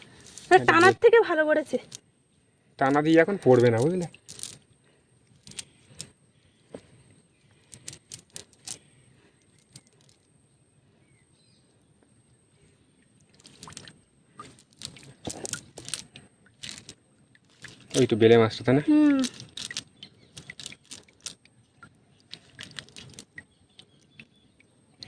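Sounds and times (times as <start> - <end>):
fishing net being handled: 0.0 - 1.1, 2.9 - 4.7, 5.3 - 10.3, 13.2 - 24.3.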